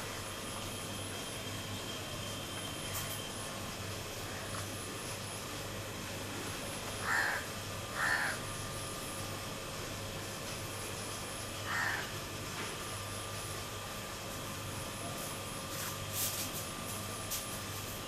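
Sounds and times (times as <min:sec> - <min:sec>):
low background hum: 0:00.0 - 0:18.0
bird calling: 0:07.0 - 0:08.4.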